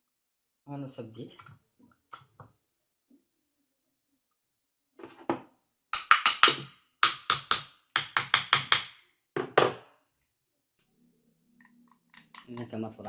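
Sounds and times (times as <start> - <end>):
knocking on drill parts: 6.0 - 9.8.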